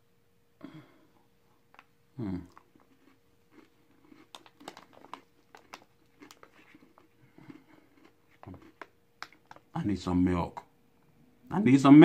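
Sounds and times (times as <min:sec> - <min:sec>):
person chewing crunchy food: 0:01.5 - 0:09.8.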